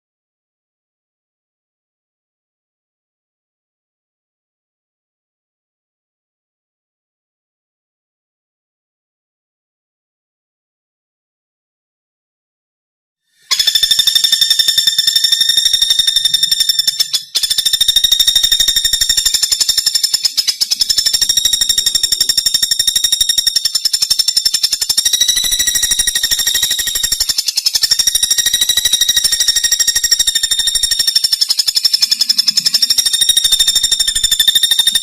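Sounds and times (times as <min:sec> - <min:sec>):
woodpecker rattling trill: 0:13.4 - 0:35.0.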